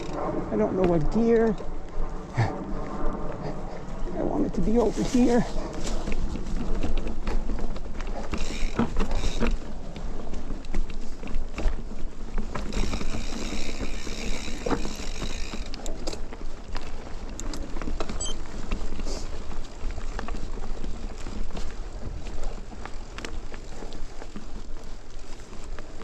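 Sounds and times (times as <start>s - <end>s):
wind on microphone: 0.0s - 10.0s
bike tyres rumbling on dirt: 0.0s - 26.0s.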